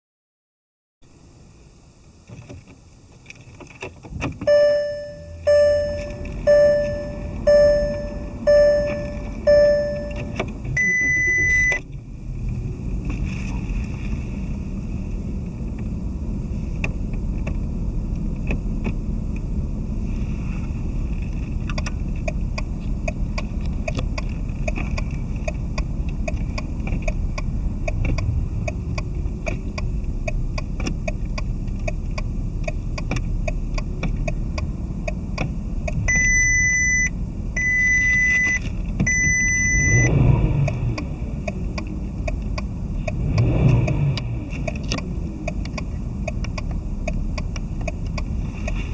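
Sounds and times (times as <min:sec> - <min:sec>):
car engine idling: 0:04.3 - 0:48.9
regular ticking: 0:04.4 - 0:11.9, 0:21.6 - 0:48.8
short electronic beeps: 0:04.5 - 0:11.8, 0:36.1 - 0:40.2.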